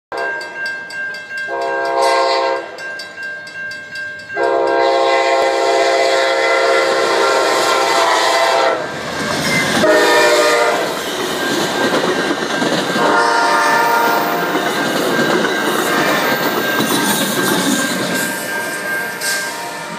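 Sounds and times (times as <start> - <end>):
train wheels rumbling on rails: 0.2 - 19.9
train horn blasts: 1.5 - 2.8, 4.4 - 8.9, 9.8 - 11.0, 13.0 - 14.5, 18.6 - 19.9.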